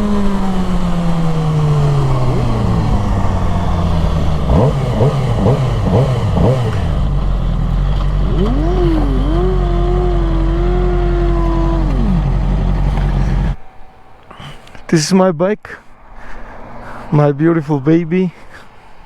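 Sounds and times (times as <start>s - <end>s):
wind rush: 0.0s - 7.4s
motorcycle engine revving: 0.0s - 13.6s.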